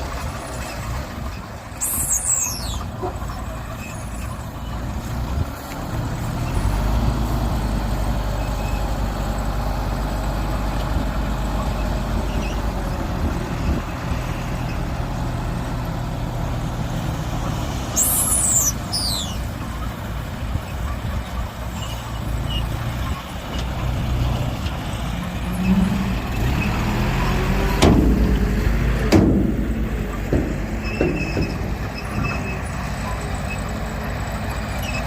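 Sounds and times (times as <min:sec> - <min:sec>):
heavy machinery diesel engine: 0:00.0 - 0:35.0
high falling squeal: 0:01.8 - 0:02.9, 0:18.0 - 0:19.4.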